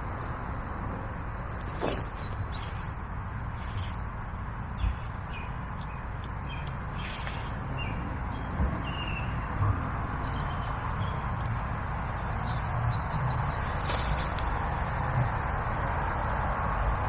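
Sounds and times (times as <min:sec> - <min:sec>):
small birds chirping: 0:01.7 - 0:14.5.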